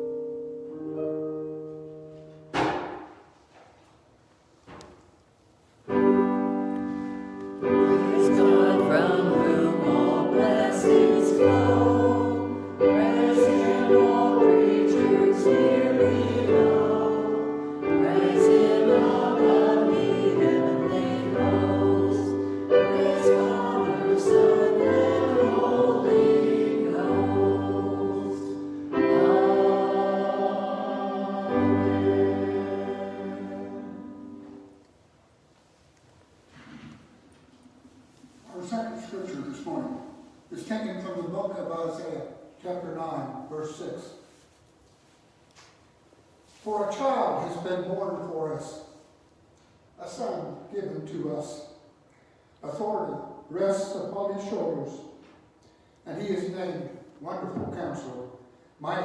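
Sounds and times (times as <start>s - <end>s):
choir singing a hymn: 6.2s - 34.8s.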